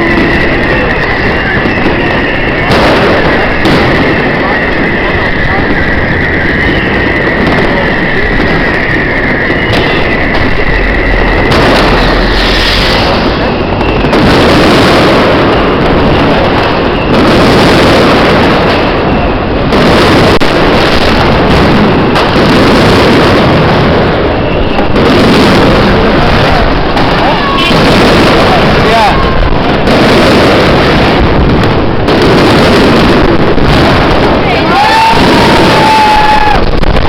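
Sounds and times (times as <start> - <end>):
fireworks and firecrackers exploding: 0.0 - 37.0
steady high whistle: 5.3 - 14.2.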